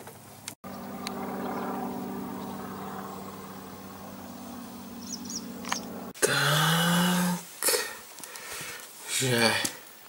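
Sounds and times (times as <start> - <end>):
car engine running: 0.6 - 6.2.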